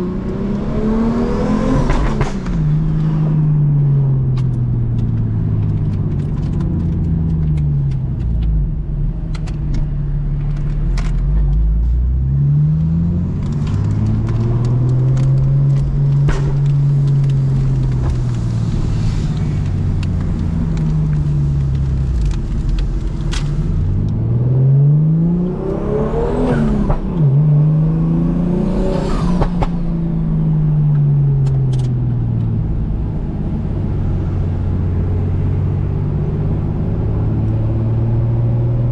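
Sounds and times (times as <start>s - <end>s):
car engine revving: 0.0s - 38.9s
exhaust pops and crackles: 4.2s - 12.1s, 12.8s - 24.2s.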